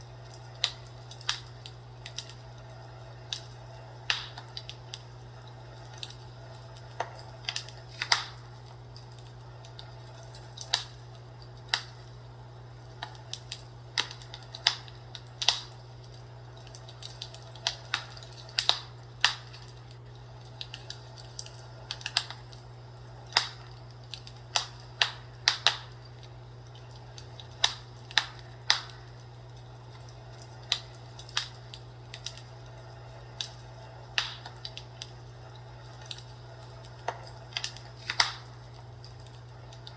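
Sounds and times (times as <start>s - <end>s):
fire crackling and popping: 0.0s - 39.9s
steady low hum: 0.0s - 39.9s.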